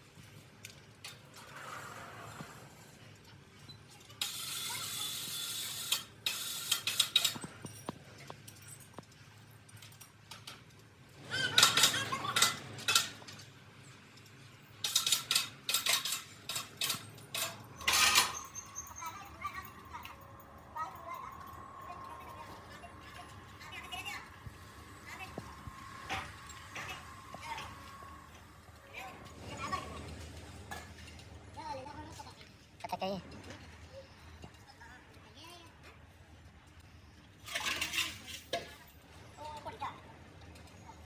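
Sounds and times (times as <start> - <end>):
metal parts clinking: 4.2 - 24.1, 37.4 - 38.9.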